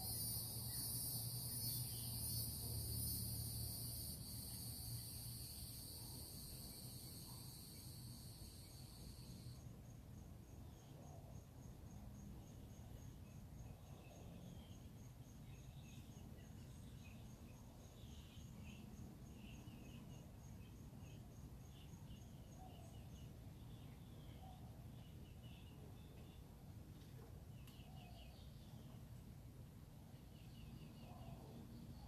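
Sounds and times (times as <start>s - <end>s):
insect chirping in even pulse: 0.0s - 14.0s.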